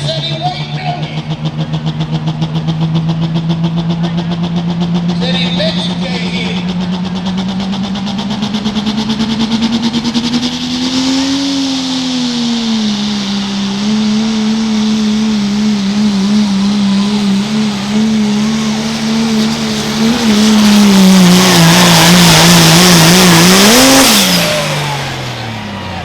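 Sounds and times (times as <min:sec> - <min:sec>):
pickup truck engine at full power: 0:00.0 - 0:26.0
tyres spinning in dirt: 0:06.4 - 0:26.0.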